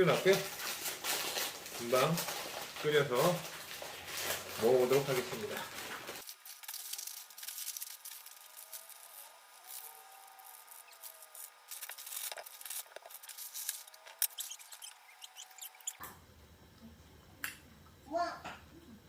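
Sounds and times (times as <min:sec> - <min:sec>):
faint squeaky glides: 0:13.2 - 0:16.0.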